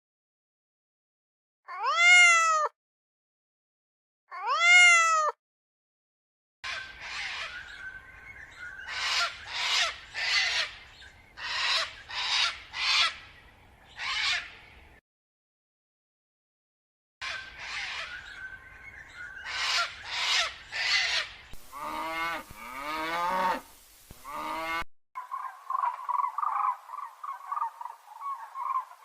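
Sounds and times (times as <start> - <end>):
meow-like animal calls: 1.7 - 2.8, 4.3 - 5.4.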